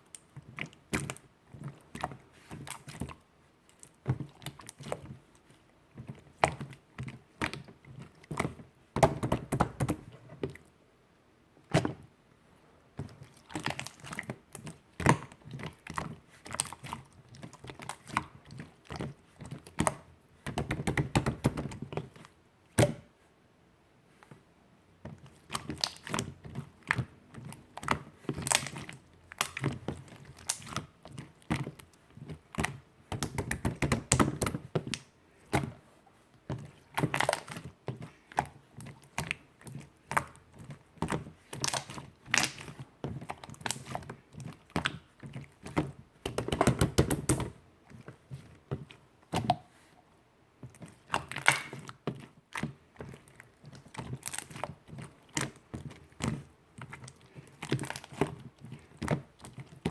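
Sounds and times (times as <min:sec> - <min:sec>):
slime squelching: 0:00.0 - 0:10.8, 0:11.6 - 0:23.2, 0:24.1 - 0:59.9
slime clicking and popping: 0:26.9 - 0:30.9, 0:41.0 - 0:44.0, 0:51.0 - 0:51.9.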